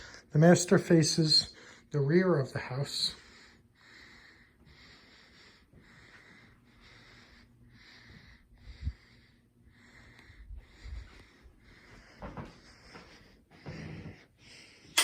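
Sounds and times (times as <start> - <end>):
person breathing: 0.0 - 0.3, 2.6 - 15.0.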